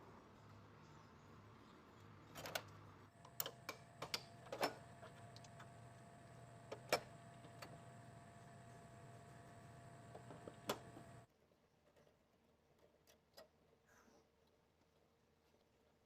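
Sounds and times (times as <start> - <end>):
faint steady hum: 2.8 - 11.3.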